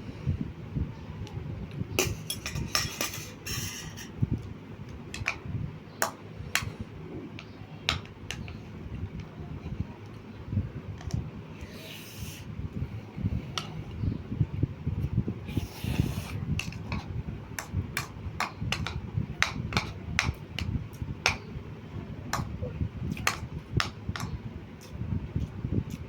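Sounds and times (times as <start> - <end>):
cutlery clinking against plate: 2.0 - 4.2.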